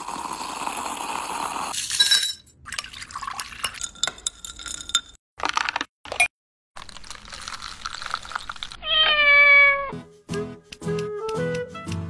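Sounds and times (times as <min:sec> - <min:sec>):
liquid pouring: 0:00.0 - 0:04.1, 0:06.8 - 0:08.9
spoon clinking against glass: 0:01.9 - 0:05.2.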